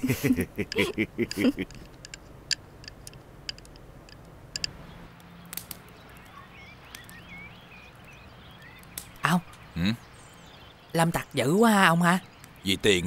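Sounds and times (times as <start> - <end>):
small birds chirping: 0.0 - 13.0
light clicks: 1.6 - 6.3.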